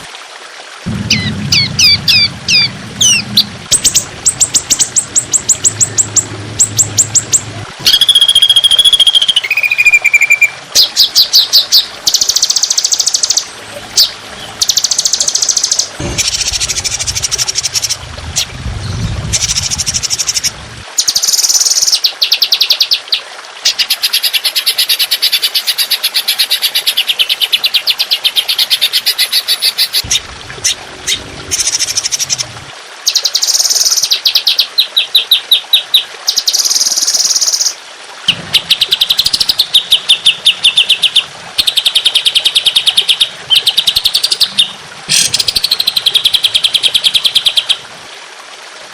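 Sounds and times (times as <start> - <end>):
low rumble: 0.8 - 7.9, 16.0 - 20.8, 30.0 - 32.8.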